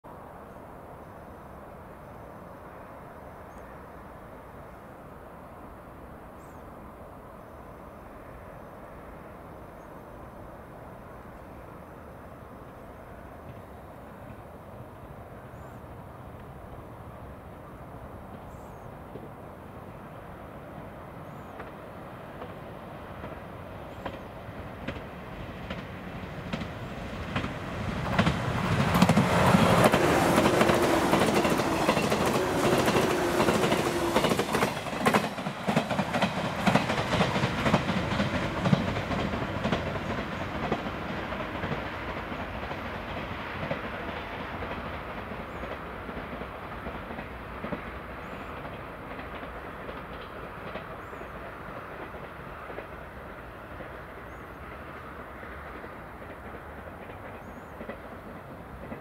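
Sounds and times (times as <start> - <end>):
train wheels clacking on rail joints: 21.5 - 59.0.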